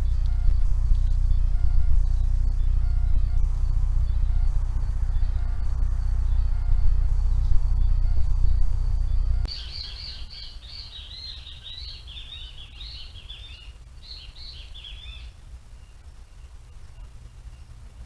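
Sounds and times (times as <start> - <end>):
loud low rumble: 0.0 - 10.5
bird chirping: 0.0 - 18.0.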